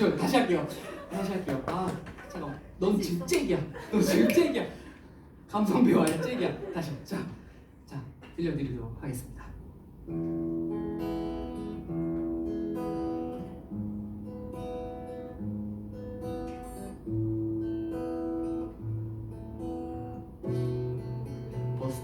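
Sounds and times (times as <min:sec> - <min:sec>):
acoustic guitar strumming chords: 0:10.1 - 0:22.0.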